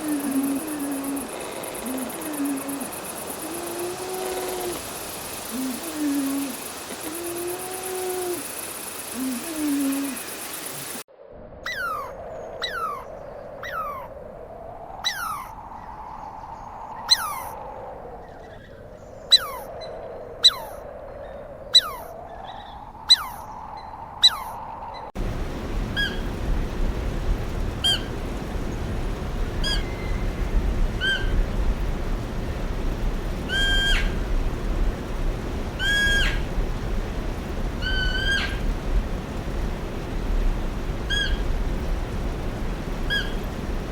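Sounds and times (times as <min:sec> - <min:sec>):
animal chirping: 0:00.0 - 0:10.9
animal calls sliding downward: 0:00.0 - 0:11.0.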